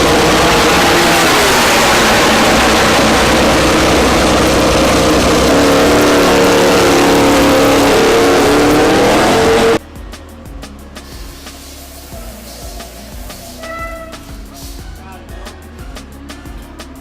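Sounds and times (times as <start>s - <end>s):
racing motorcycle engine high revs: 0.0s - 9.8s.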